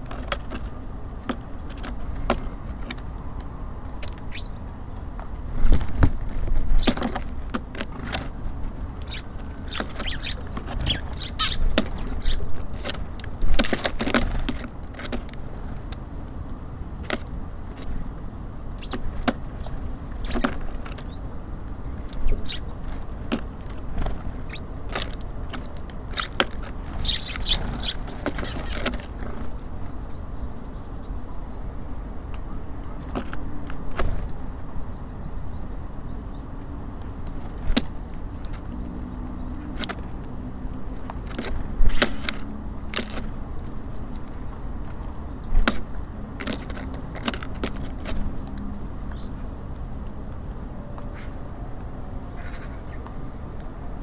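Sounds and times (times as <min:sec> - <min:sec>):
low traffic rumble: 0:00.0 - 0:54.0
beaks pecking seed: 0:03.9 - 0:04.6, 0:06.0 - 0:14.6, 0:18.8 - 0:21.2, 0:22.0 - 0:29.5.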